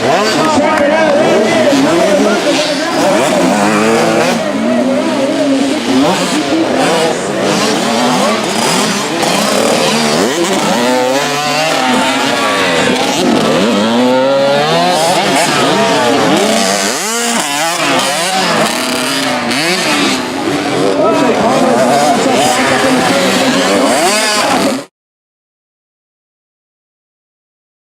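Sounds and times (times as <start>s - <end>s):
motocross bikes revving: 0.0s - 24.9s.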